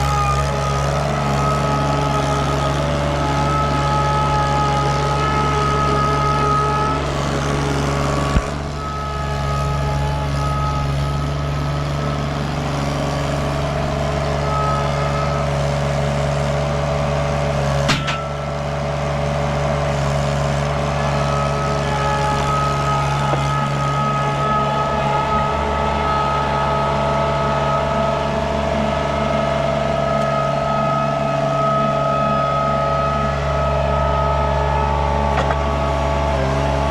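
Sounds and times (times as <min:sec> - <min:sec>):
high whine: 0:00.0 - 0:36.9
skid steer engine running: 0:00.0 - 0:36.9
sharp knocks: 0:17.8 - 0:18.4.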